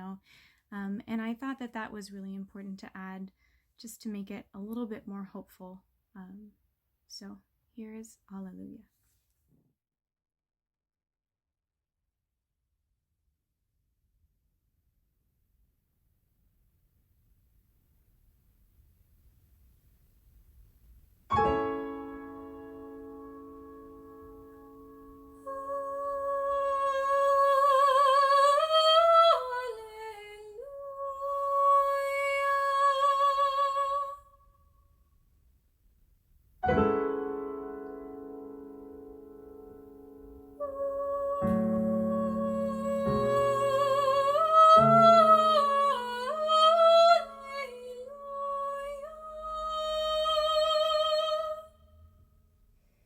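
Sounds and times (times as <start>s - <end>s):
piano chord ringing: 21.3s - 25.5s, 36.7s - 40.6s
person singing with vibrato: 25.4s - 34.4s, 40.6s - 51.7s.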